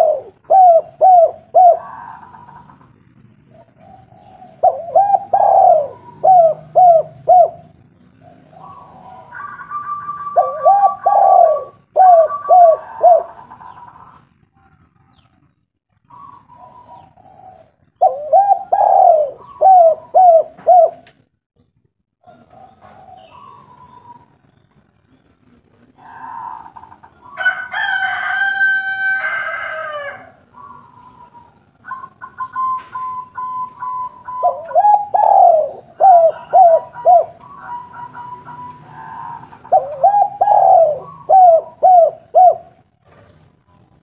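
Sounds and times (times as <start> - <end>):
doves cooing: 0.0 - 14.3, 16.0 - 21.2, 22.2 - 25.0, 25.7 - 44.0
long crowing call: 26.0 - 30.5, 34.8 - 41.6.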